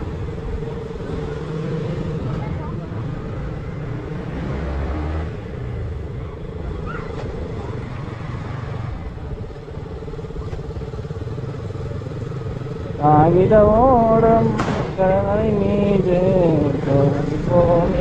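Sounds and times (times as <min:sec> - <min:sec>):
motorcycle engine running: 0:00.0 - 0:04.3, 0:05.3 - 0:18.0
road and wind noise: 0:00.0 - 0:18.0.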